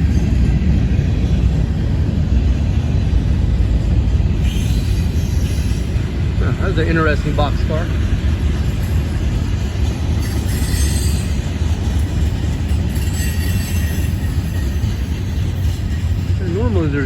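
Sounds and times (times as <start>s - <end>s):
train wheels rumbling on rail: 0.0s - 17.0s
faint high wheel squeals: 4.4s - 6.0s, 10.2s - 11.5s, 12.6s - 16.4s.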